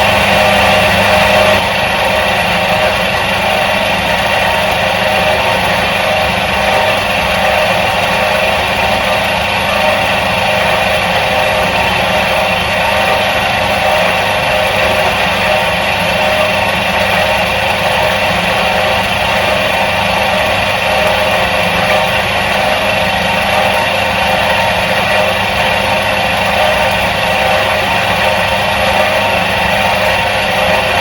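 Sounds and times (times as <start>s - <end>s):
washing machine motor humming: 0.0s - 31.0s.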